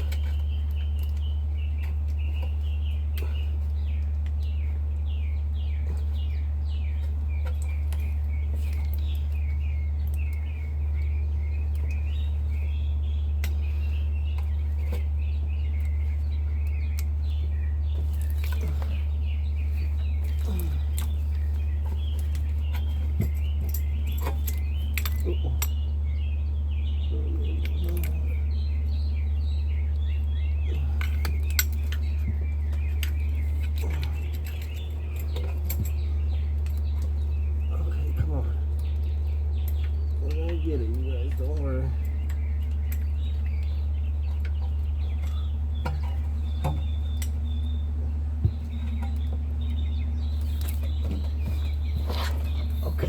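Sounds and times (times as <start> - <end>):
small birds chirping: 0.0 - 53.0
steady low hum: 0.0 - 53.0
metallic clinks of hand tools: 21.8 - 25.8.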